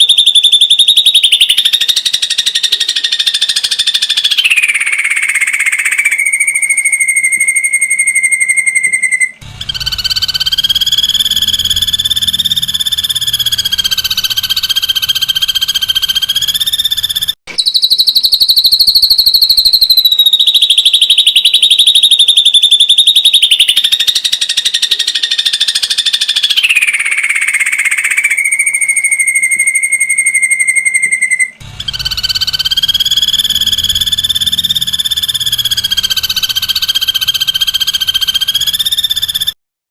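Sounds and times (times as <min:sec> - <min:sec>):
bird giving rapid trilled calls: 0:08.2 - 0:39.6.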